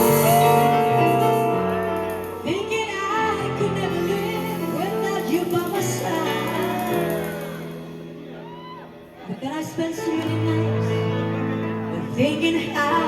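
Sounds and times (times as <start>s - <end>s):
sustained chords and bass line: 0.0s - 3.5s
woman singing: 0.0s - 8.0s, 9.2s - 13.0s.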